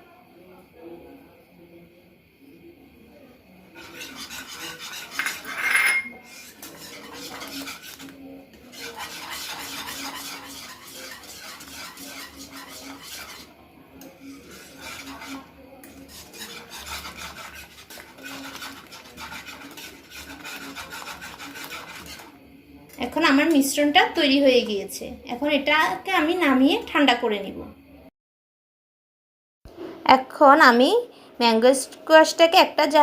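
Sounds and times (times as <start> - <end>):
spoon scraping a pot: 3.7 - 24.3
spoon clinking on pot: 4.9 - 7.5.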